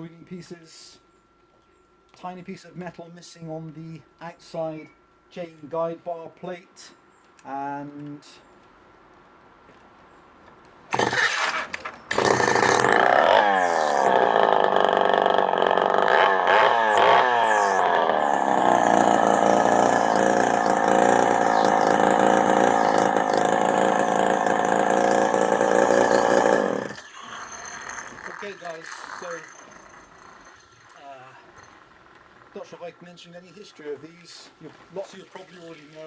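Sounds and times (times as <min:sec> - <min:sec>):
chainsaw starting and revving: 0:10.9 - 0:35.7.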